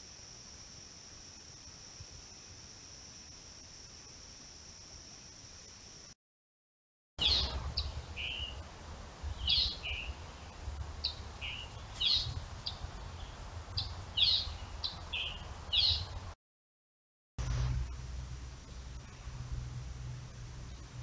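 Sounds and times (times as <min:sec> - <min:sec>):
insect chorus: 0:00.0 - 0:06.2
songbird calls: 0:07.2 - 0:08.6, 0:09.3 - 0:16.2
low rumble: 0:17.4 - 0:21.0.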